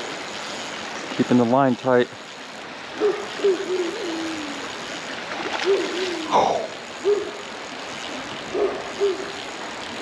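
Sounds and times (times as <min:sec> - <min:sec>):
low hooting bird calls: 0:03.0 - 0:04.7, 0:05.5 - 0:07.5, 0:08.5 - 0:09.4.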